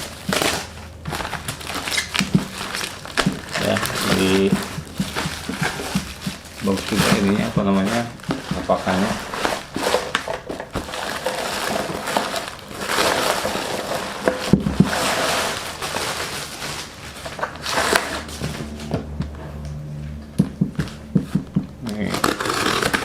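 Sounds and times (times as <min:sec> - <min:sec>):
cardboard and wrapping rustling: 0:00.0 - 0:18.4, 0:21.2 - 0:23.0
low steady hum: 0:17.0 - 0:23.0.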